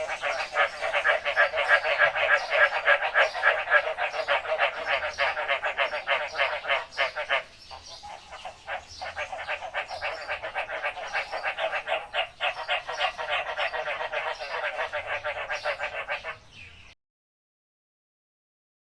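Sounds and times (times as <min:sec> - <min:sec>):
frogs croaking: 0:00.0 - 0:16.5.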